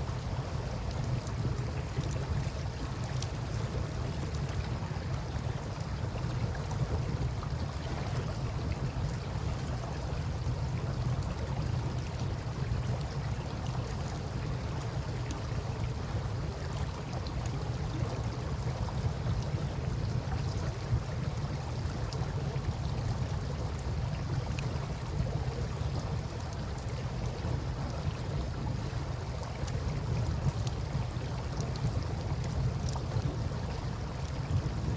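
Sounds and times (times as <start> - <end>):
river water flowing: 0.0 - 34.9
campfire crackling and popping: 29.4 - 34.9.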